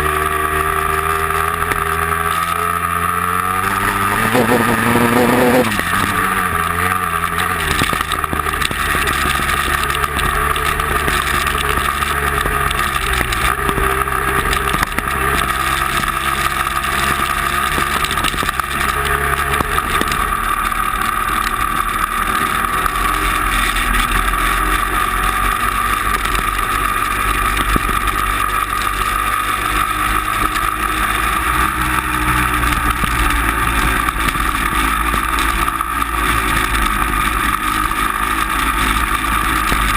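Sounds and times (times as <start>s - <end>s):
vehicle engine drone: 0.0s - 39.9s
high whine: 3.6s - 15.6s.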